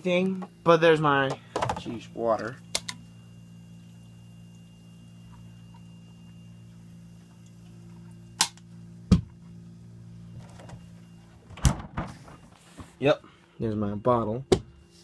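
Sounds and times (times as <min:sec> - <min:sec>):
mini fridge humming: 0:00.0 - 0:15.0.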